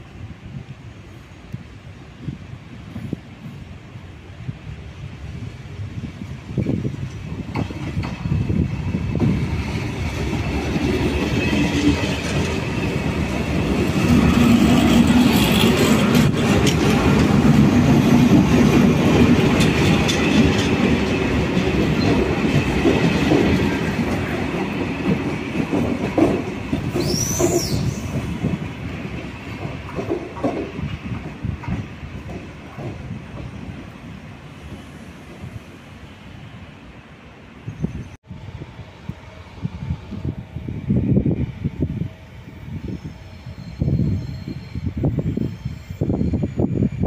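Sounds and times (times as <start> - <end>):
train wheels clickety-clack: 6.2 - 33.9
high wheel squeal: 26.9 - 28.2, 42.7 - 47.0.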